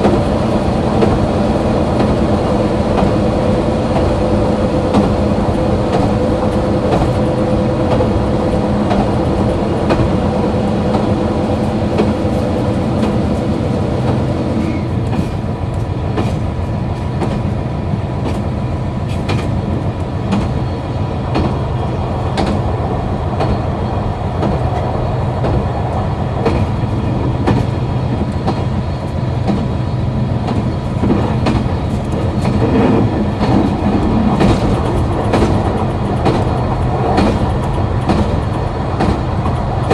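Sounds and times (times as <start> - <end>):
diesel railcar engine humming: 0.0 - 39.9
train rolling rumble: 0.0 - 39.9
wheels clicking over rail joints: 30.4 - 39.9.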